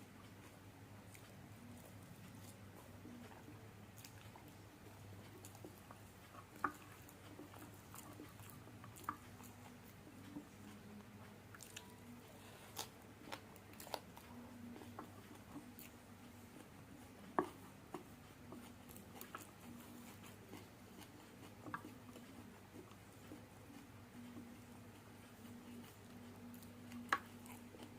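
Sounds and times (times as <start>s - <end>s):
chewing noodles: 0.2s - 27.9s.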